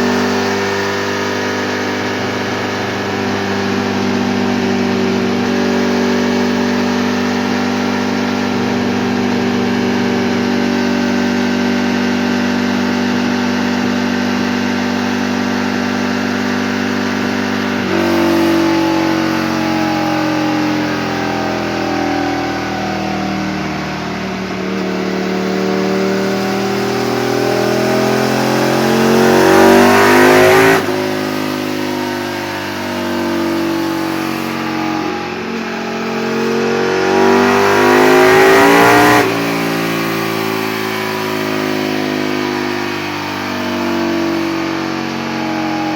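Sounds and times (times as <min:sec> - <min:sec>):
motorcycle engine revving on dyno: 0:00.0 - 0:45.9.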